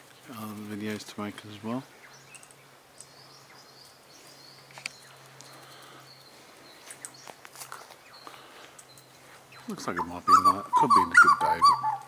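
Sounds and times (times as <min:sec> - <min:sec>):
high bird chirps: 0:08.0 - 0:12.0.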